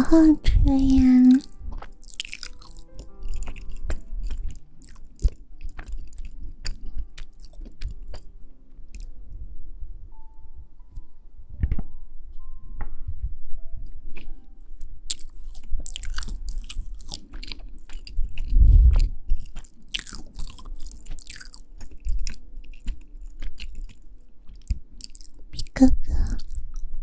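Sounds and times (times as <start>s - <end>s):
chewing crunchy food: 0.8s - 9.2s, 14.1s - 27.0s
low thump: 11.6s - 12.0s.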